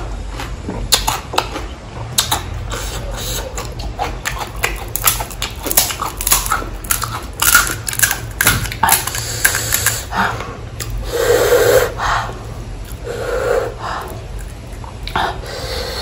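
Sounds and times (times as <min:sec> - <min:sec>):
chewing crisp shells: 0:00.0 - 0:10.1, 0:10.8 - 0:11.0, 0:14.0 - 0:15.2.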